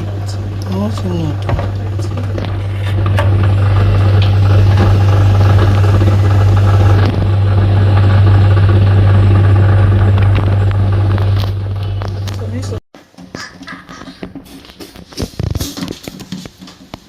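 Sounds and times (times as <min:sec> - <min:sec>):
low motor hum: 0:00.0 - 0:12.8.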